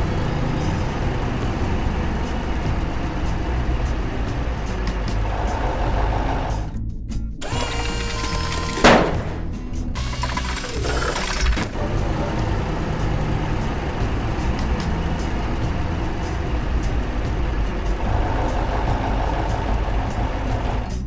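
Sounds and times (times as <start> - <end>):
heavy vehicle engine running: 7.4 - 21.0.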